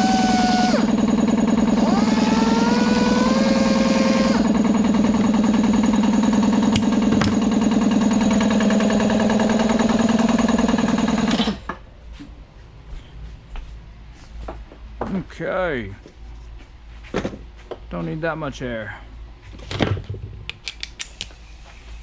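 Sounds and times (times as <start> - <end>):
shop tool motor humming: 0.0 - 11.8.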